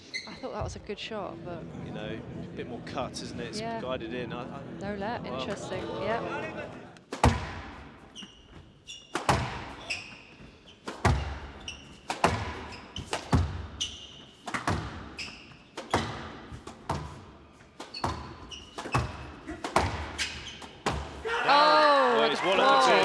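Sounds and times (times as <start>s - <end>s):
shoes squeaking on wooden floor: 0.0s - 0.8s, 8.0s - 21.3s
squash ball hitting rackets and walls: 7.0s - 8.4s, 9.0s - 21.4s.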